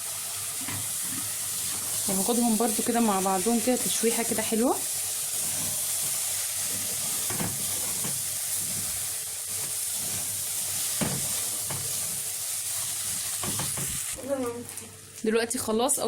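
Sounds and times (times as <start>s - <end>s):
food sizzling in hot oil: 0.0s - 16.0s
spoon scraping a pot: 5.4s - 9.0s.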